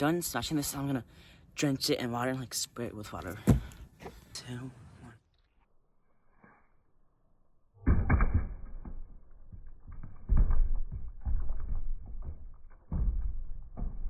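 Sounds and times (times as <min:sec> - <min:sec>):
slowed deep crashes of brick: 0:03.4 - 0:03.9, 0:07.8 - 0:14.0.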